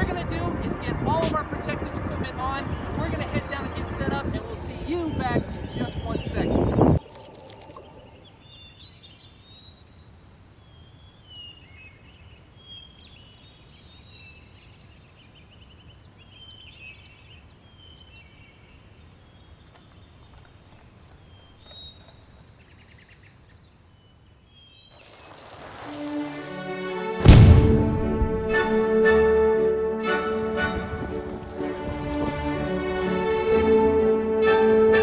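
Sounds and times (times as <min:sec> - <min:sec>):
small birds chirping: 0:02.6 - 0:26.5
rush of noise: 0:25.0 - 0:29.0.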